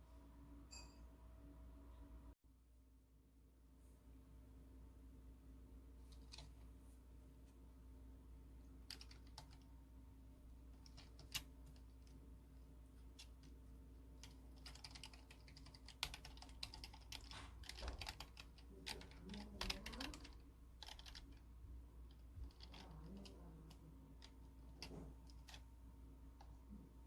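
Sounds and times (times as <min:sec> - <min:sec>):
keyboard typing: 0:06.1 - 0:06.6, 0:08.8 - 0:09.7, 0:10.7 - 0:12.2, 0:13.0 - 0:21.5, 0:22.1 - 0:25.7.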